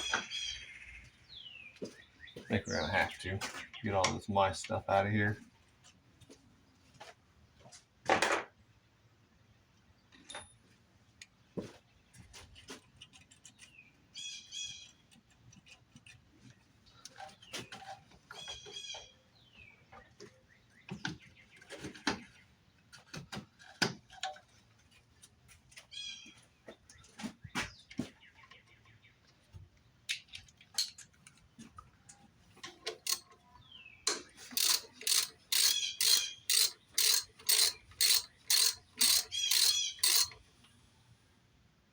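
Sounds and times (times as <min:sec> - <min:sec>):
tools clicking and knocking: 0:30.1 - 0:31.4, 0:32.6 - 0:33.4, 0:34.1 - 0:40.5
ratchet wrench clicking: 0:32.9 - 0:33.2, 0:34.1 - 0:40.4.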